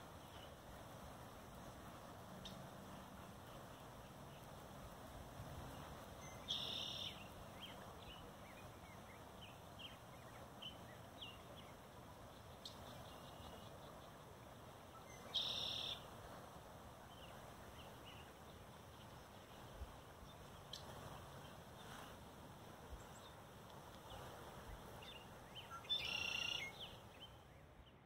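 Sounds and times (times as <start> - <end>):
faint steady rushing noise: 0.0 - 28.0
birds chirping: 5.7 - 16.1, 22.9 - 28.0
buzzy bird calls: 15.0 - 16.1, 25.1 - 27.3.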